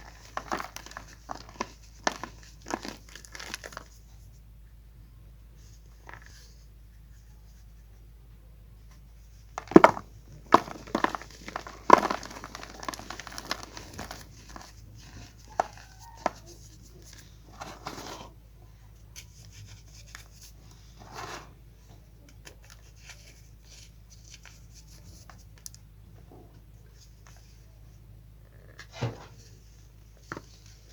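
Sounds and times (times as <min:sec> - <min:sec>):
chalk crushing and crumbling: 0:00.0 - 0:04.2, 0:09.3 - 0:18.3.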